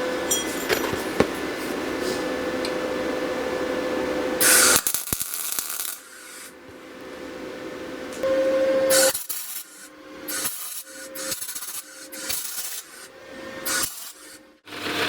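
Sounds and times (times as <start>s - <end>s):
power tool whining: 8.2s - 15.0s
harsh grinding burst: 8.9s - 15.0s.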